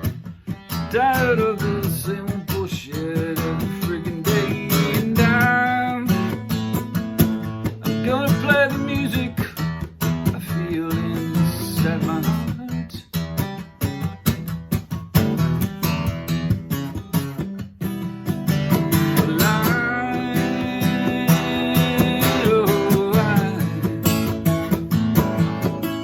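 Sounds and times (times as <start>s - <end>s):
acoustic guitar strumming: 0.0s - 26.0s
person singing: 0.9s - 6.4s, 7.8s - 9.7s, 18.9s - 26.0s.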